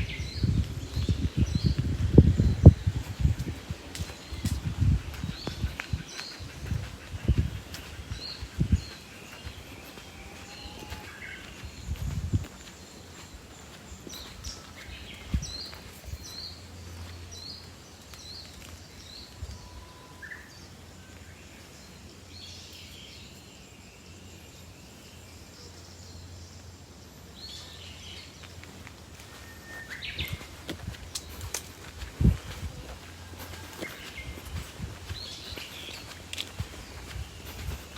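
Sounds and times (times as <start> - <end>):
steady low rumble: 0.0 - 17.5, 30.3 - 37.9
birds calling: 0.0 - 20.7, 27.5 - 37.9.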